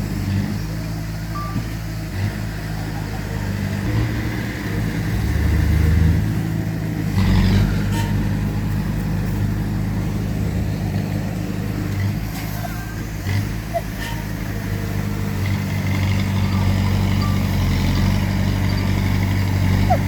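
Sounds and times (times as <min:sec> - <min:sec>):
heavy diesel engines running: 0:00.0 - 0:20.0
reversing beep: 0:01.3 - 0:01.8, 0:16.4 - 0:20.0.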